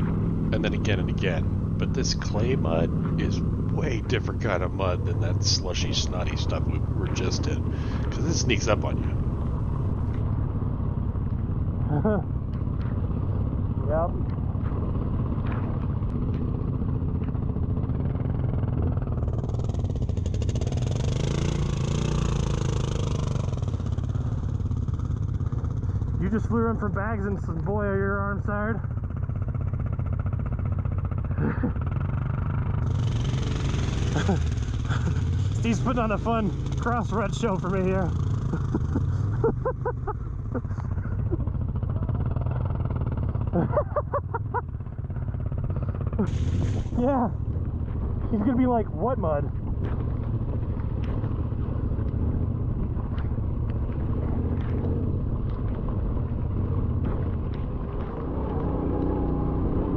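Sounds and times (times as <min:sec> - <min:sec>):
motorcycle engine running: 0:00.0 - 0:59.9
people laughing: 0:00.6 - 0:09.2, 0:11.8 - 0:12.3, 0:31.3 - 0:31.9, 0:34.0 - 0:42.5, 0:43.3 - 0:45.2.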